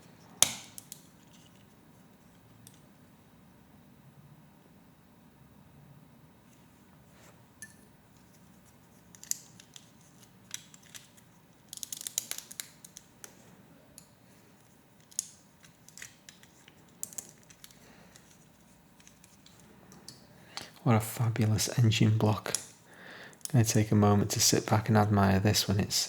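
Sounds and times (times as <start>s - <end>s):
plastic pieces clicking together: 9.1s - 13.1s, 15.0s - 18.4s.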